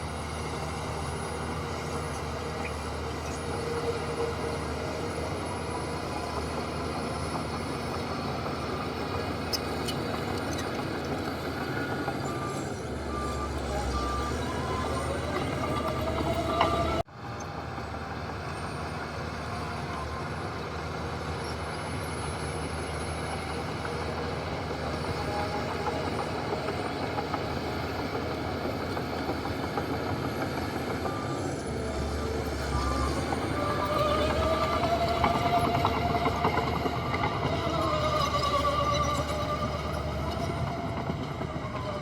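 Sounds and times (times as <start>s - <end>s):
heavy machinery diesel engines: 0.0s - 42.0s
reversing beeper: 11.5s - 17.0s, 30.2s - 42.0s
engine revving: 30.6s - 42.0s.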